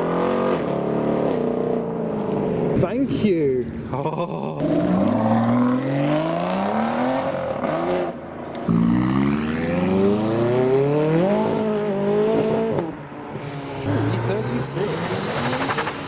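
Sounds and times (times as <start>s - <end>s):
car engine accelerating: 4.6s - 16.0s.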